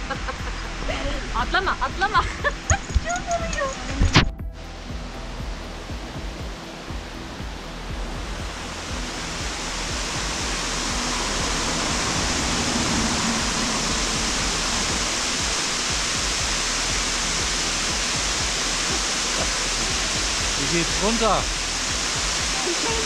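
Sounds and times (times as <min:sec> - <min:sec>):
waterfall rushing: 0:05.0 - 0:23.0.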